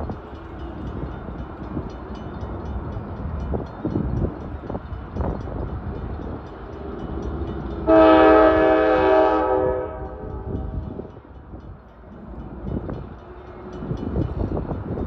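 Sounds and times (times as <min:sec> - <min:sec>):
train rumbling and knocking: 0:00.0 - 0:15.0
locomotive air horn: 0:07.8 - 0:11.0.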